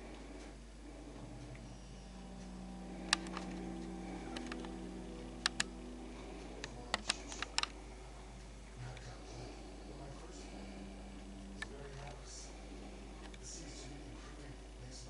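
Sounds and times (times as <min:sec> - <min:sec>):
low steady hum: 0:00.0 - 0:15.0
sharp clicks and taps: 0:03.0 - 0:03.7, 0:04.3 - 0:04.8, 0:05.4 - 0:05.8, 0:06.6 - 0:07.8.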